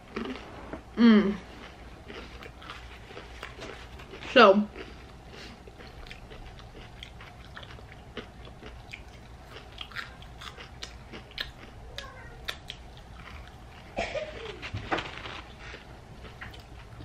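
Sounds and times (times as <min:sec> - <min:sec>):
chewing crunchy onion rings: 0:00.0 - 0:00.5, 0:01.3 - 0:17.0.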